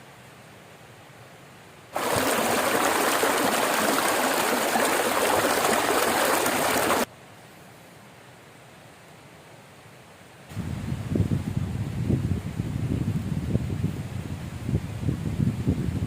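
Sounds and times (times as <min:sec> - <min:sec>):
forest river flowing: 0:01.4 - 0:09.0.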